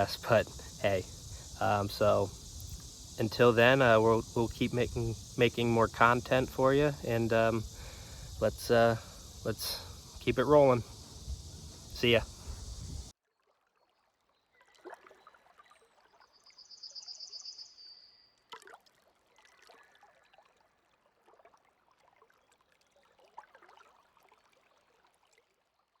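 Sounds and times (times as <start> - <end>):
water trickling: 0.0 - 13.1.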